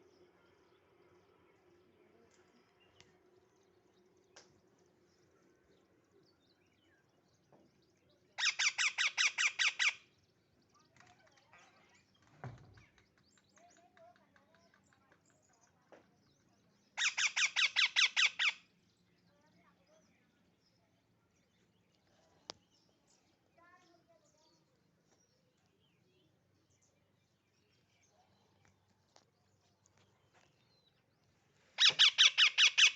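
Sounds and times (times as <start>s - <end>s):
faint bird chirps: 0.0s - 32.9s
parrot squawking: 8.4s - 10.0s, 17.0s - 18.6s, 31.8s - 32.9s.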